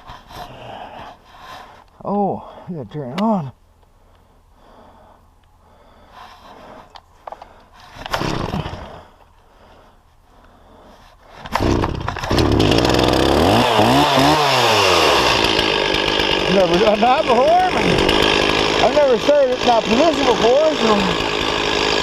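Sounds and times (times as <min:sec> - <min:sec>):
chainsaw starting and running: 0:07.8 - 0:09.2, 0:11.4 - 0:22.0.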